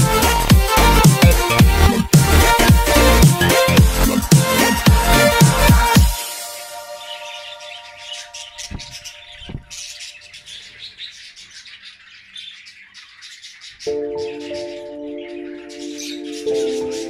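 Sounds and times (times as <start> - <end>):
held music chords: 0.0 - 9.7, 13.9 - 17.0
budgerigars chattering and chirping: 6.5 - 17.0.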